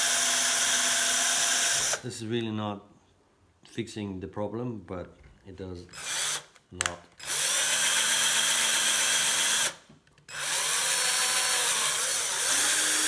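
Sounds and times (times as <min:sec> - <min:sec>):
small electric drill drilling: 0:00.0 - 0:02.0, 0:05.9 - 0:06.6, 0:07.2 - 0:13.0.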